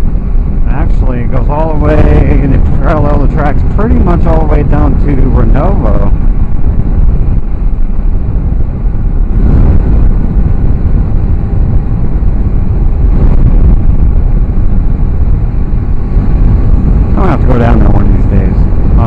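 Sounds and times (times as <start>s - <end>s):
wind rush on microphone: 0.0s - 19.0s.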